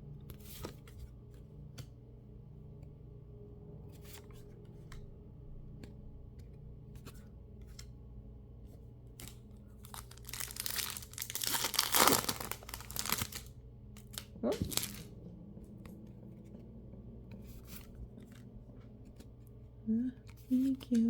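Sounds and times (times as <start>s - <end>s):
foil wrapper torn and crinkled: 9.2s - 15.1s.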